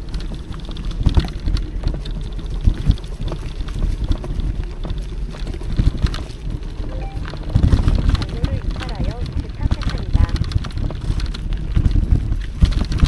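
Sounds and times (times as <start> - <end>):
wind rumble on microphone: 7.6 - 13.0.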